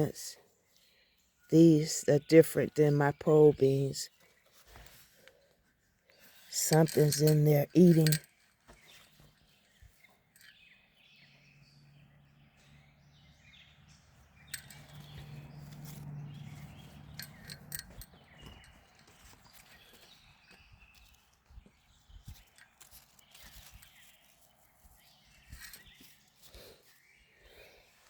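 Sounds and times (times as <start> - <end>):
clicks and knocks of handling plants: 4.1 - 10.6, 14.5 - 26.9.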